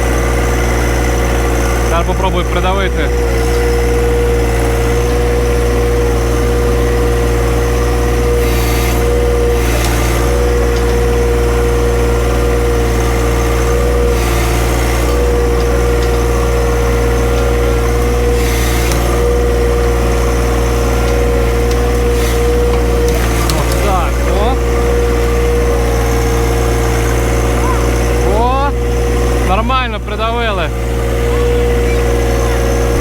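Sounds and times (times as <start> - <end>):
tractor engine under load: 0.0 - 33.0
short noisy bursts: 8.1 - 10.7, 32.7 - 33.0.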